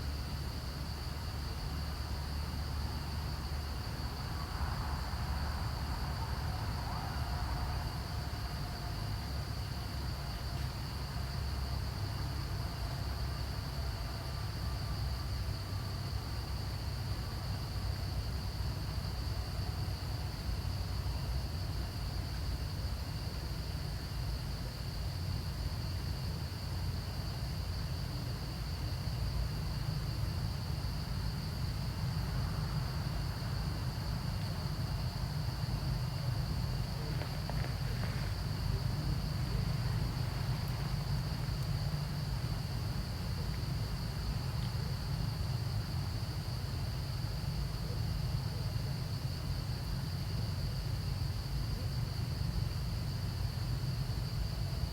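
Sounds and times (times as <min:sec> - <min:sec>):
high insect drone: 0:00.0 - 0:54.9.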